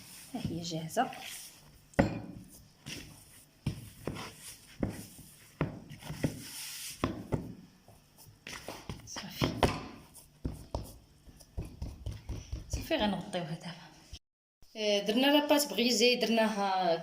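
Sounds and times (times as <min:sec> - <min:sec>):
hands patting dough: 0:00.0 - 0:12.9.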